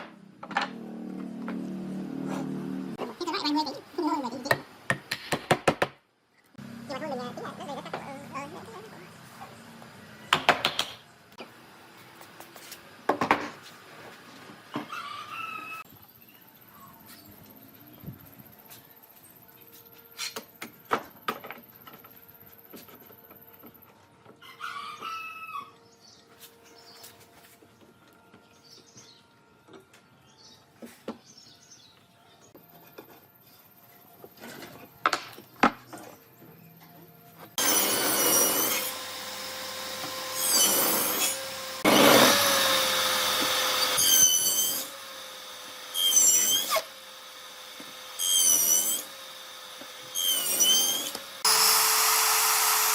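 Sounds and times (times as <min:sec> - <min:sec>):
power tool whining on wood: 0:37.6 - 0:52.9.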